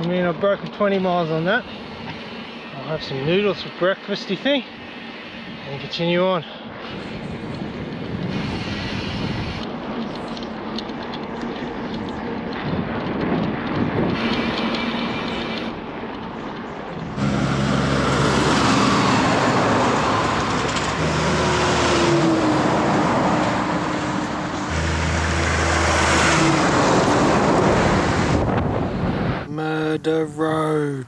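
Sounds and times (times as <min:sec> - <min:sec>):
vehicles passing on highway: 0:06.8 - 0:29.8.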